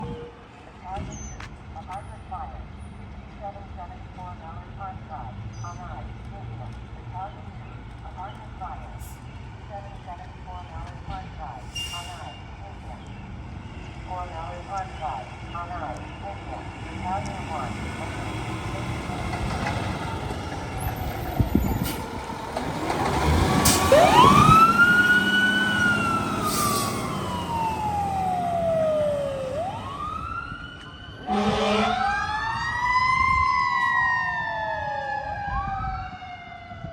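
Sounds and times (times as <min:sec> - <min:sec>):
truck engine rumble: 0:00.0 - 0:36.9
fire engine siren wailing: 0:14.0 - 0:36.9
loud horn blast: 0:31.2 - 0:32.1.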